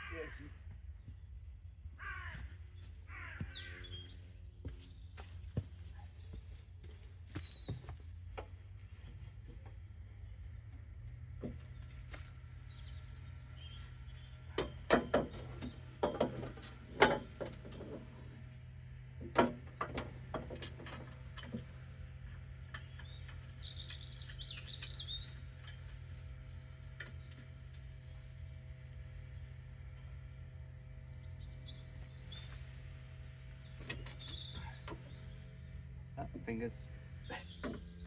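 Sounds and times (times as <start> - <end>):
small bird chirping: 2.8 - 9.3, 22.8 - 25.9, 30.8 - 38.0
sharp knocks and clicks: 14.5 - 18.0.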